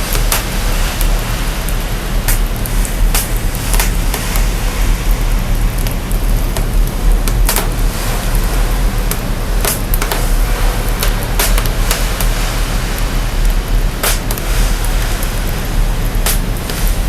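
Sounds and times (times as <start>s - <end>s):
fire crackles and pops: 0.0s - 17.0s
fire rushing hiss and rumble: 0.0s - 17.0s.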